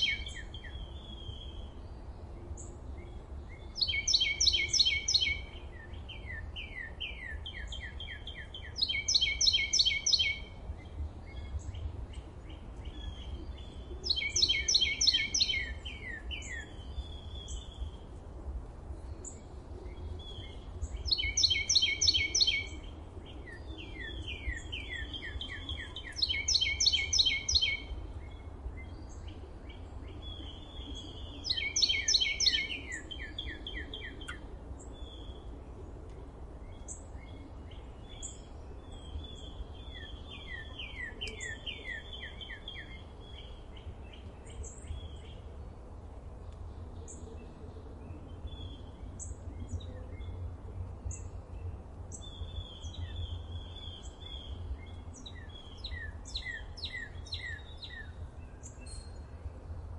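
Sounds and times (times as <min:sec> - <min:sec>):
songbird trilling: 0:00.0 - 0:01.5, 0:03.6 - 0:10.5, 0:12.8 - 0:17.8, 0:20.3 - 0:27.9, 0:30.3 - 0:34.4, 0:52.1 - 0:59.1.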